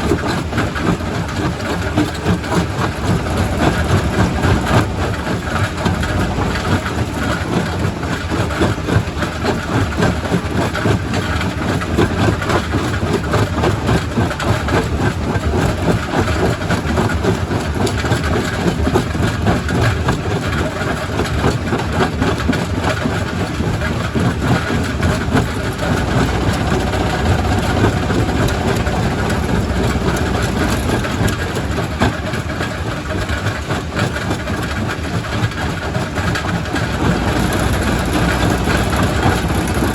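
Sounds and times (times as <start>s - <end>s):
rock crusher drone: 2.9s - 7.2s, 25.1s - 32.1s, 36.8s - 39.9s.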